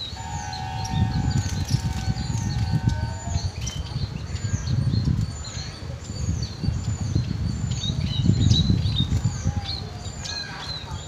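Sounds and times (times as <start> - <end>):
low microphone rumble: 0.0 - 11.0.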